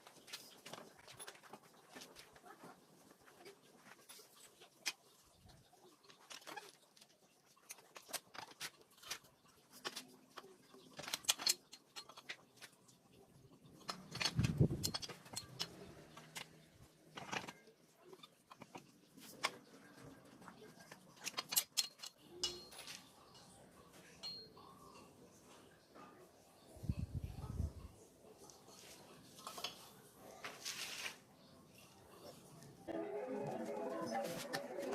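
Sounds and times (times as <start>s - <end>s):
hand tools clinking on metal: 13.8s - 16.6s, 21.2s - 23.6s.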